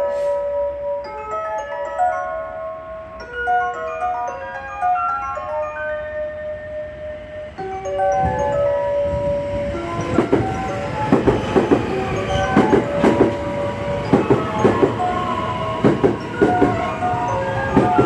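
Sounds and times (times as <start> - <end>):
station chime melody: 0.0 - 18.0
train wheels clacking over rails: 9.1 - 18.0.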